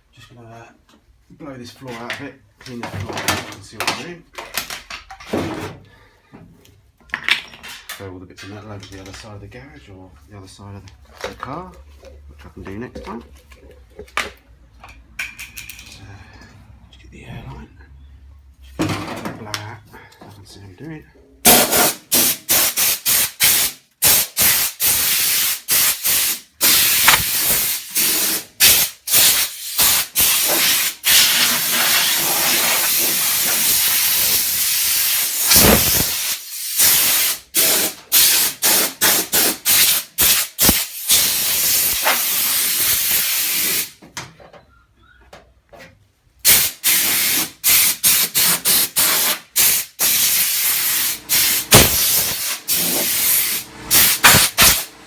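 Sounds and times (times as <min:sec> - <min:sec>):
compressed air blow gun hissing: 0:21.5 - 0:43.9, 0:46.5 - 0:54.9.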